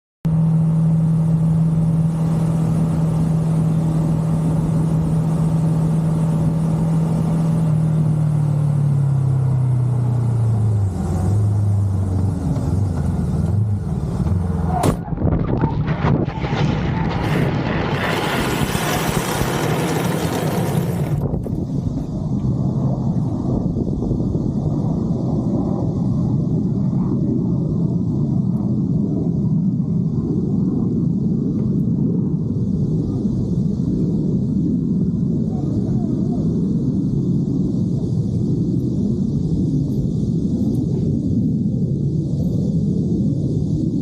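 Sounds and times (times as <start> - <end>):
loud rushing noise: 11.9 - 22.1.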